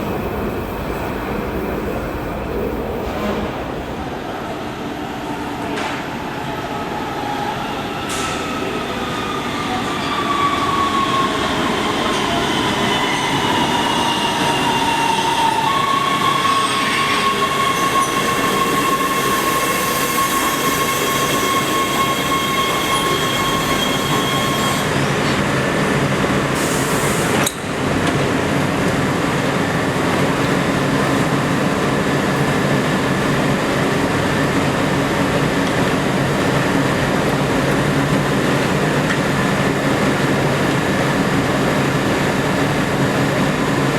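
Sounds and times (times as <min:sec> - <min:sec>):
metro train whine: 0:00.0 - 0:43.9
train running noise: 0:09.6 - 0:43.9.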